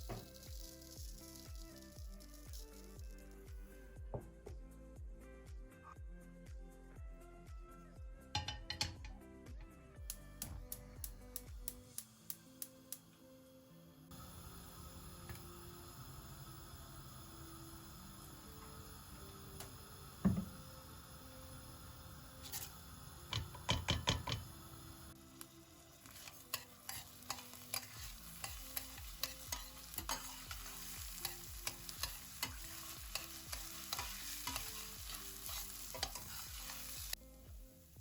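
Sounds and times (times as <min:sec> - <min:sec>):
food sizzling in a frying pan: 0:00.0 - 0:03.8, 0:14.1 - 0:38.0
utensil scraping a pan: 0:26.0 - 0:37.2.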